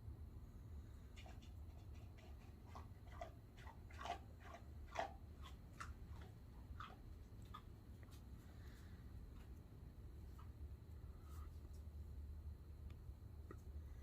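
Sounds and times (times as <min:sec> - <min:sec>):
coyote crunching on food: 0:01.2 - 0:10.7.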